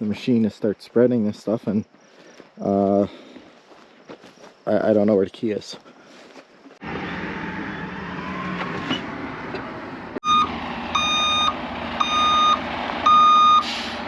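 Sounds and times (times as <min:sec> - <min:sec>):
vehicle engine running: 0:06.8 - 0:14.0
reversing alarm beeping: 0:10.2 - 0:13.7.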